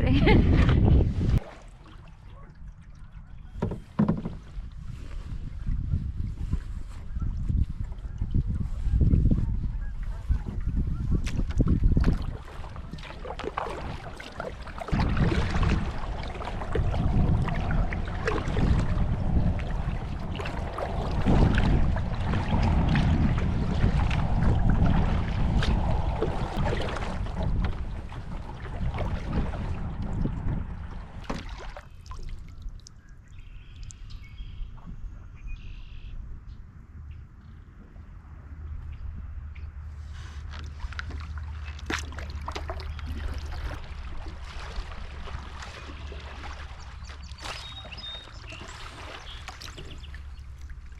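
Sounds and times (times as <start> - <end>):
paddle splashing water: 0.0 - 35.0, 39.8 - 50.9
wind rumble on microphone: 0.0 - 50.9
faint birds calling: 45.7 - 50.6.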